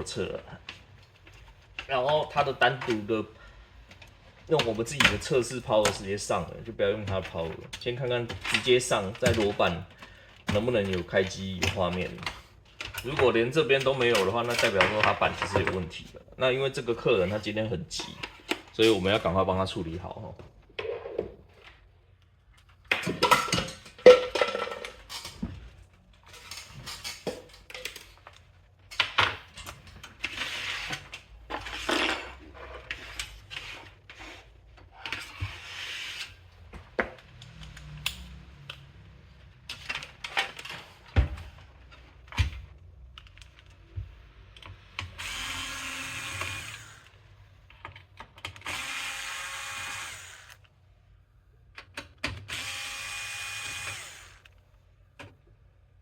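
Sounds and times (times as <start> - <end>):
electric screwdriver whirring: 45.1 - 47.2, 48.6 - 50.7, 52.5 - 54.5.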